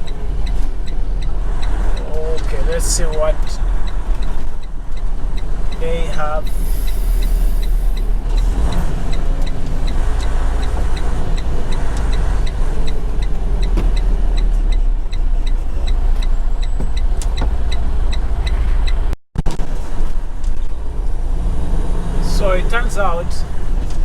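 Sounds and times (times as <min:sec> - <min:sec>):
short regular ticking: 0:00.0 - 0:19.2
diesel truck engine rumbling: 0:00.0 - 0:24.0.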